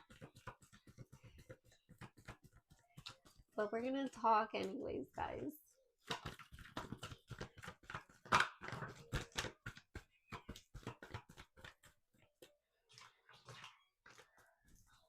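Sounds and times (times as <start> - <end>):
cards being shuffled by hand: 0.0 - 3.6, 6.0 - 12.5.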